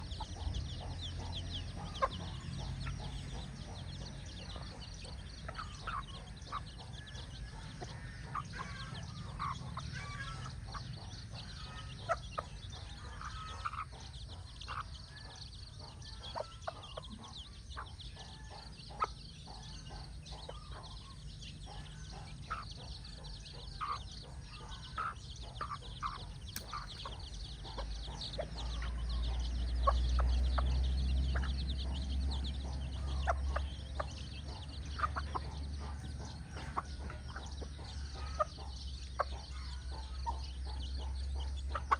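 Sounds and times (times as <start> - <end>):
chicks peeping: 0.0 - 41.9
hen clucking: 0.0 - 41.9.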